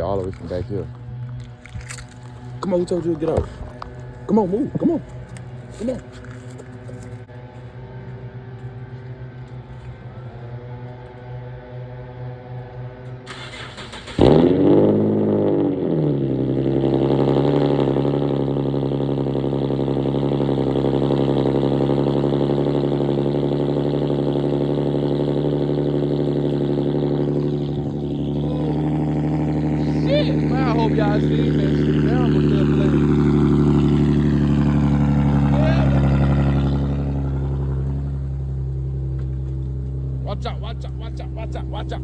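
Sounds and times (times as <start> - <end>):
engine cranking: 0.0 - 7.3, 13.3 - 14.9, 25.8 - 42.0
car engine starting and idling: 0.0 - 42.0
quiet steady engine hum: 0.0 - 42.0.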